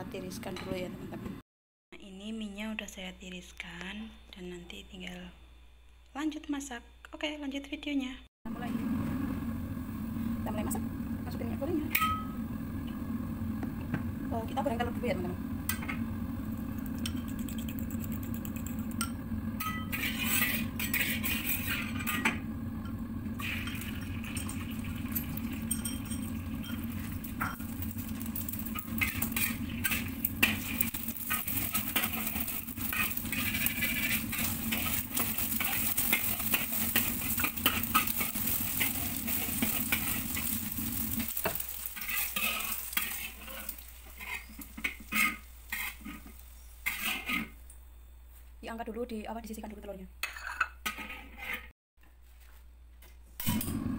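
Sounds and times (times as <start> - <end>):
eggs sizzling in oil: 9.2 - 47.7
eggs beaten in ceramic bowl: 16.8 - 19.0
metal spatula scraping pan: 17.1 - 22.4, 23.4 - 47.6, 50.3 - 51.7.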